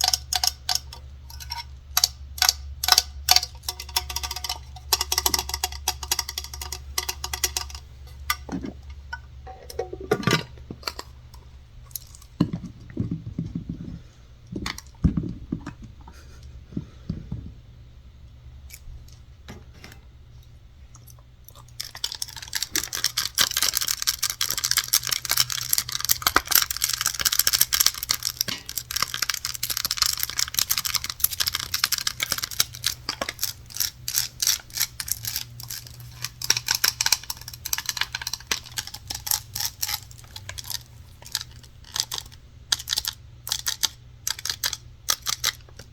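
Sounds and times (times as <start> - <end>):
scratching on objects: 21.5 - 45.9.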